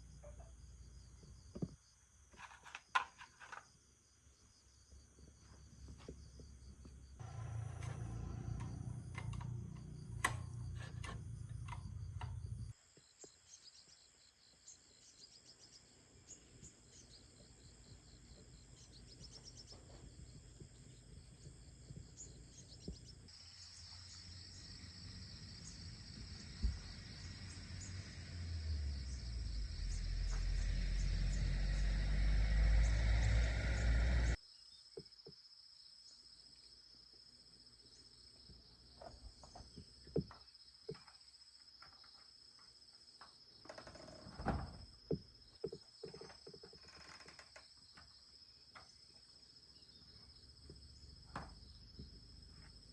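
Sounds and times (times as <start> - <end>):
insects chirring: 0.0 - 52.9
low rumble: 24.5 - 34.4.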